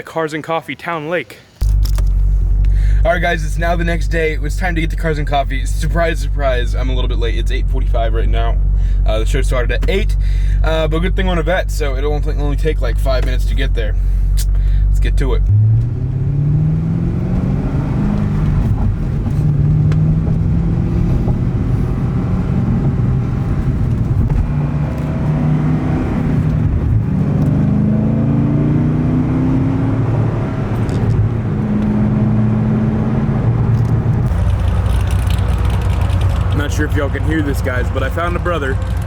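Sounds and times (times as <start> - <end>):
car engine shifting gears: 1.6 - 39.0.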